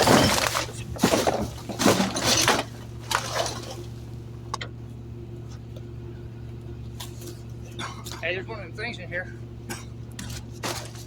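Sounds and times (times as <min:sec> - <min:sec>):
trash rustling: 0:00.0 - 0:04.2, 0:10.2 - 0:11.0
garbage truck humming: 0:00.0 - 0:11.0.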